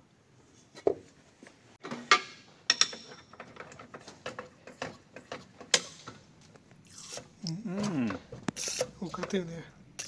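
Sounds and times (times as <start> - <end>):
tools clicking and knocking: 1.8 - 6.2.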